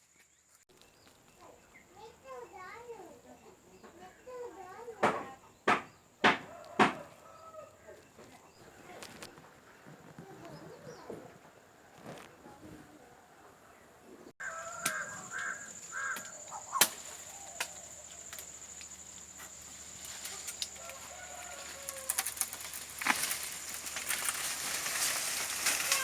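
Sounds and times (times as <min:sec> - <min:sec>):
bird calls: 0:14.4 - 0:26.0.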